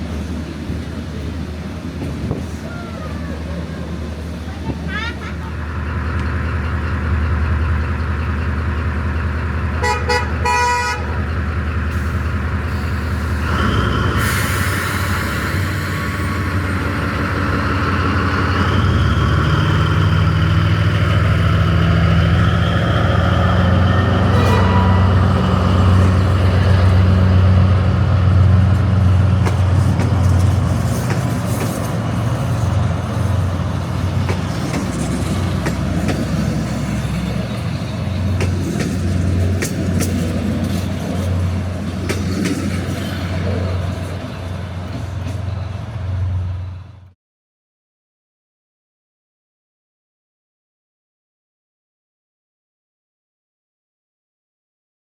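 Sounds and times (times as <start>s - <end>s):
train engine drone: 0.0s - 47.2s
short horn toots: 23.9s - 26.3s.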